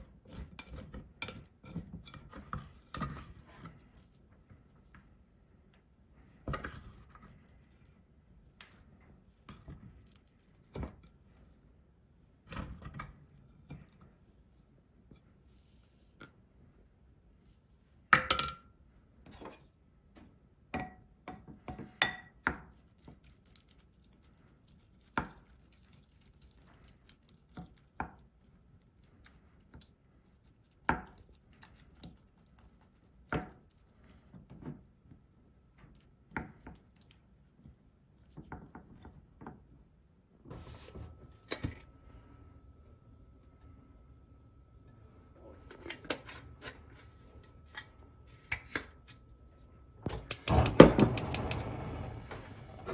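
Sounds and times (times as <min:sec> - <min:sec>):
kitchenware clinking and knocking: 0:50.1 - 0:51.8.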